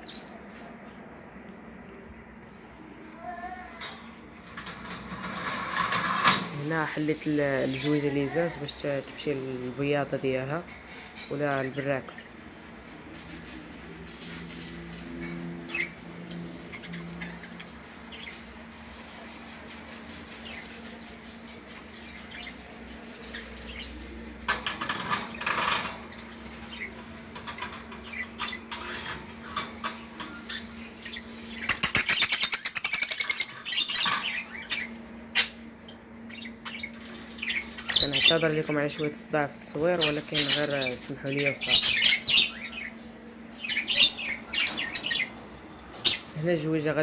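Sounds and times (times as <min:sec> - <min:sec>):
budgerigars chirping: 0:21.8 - 0:24.0, 0:30.4 - 0:39.1, 0:40.0 - 0:45.4.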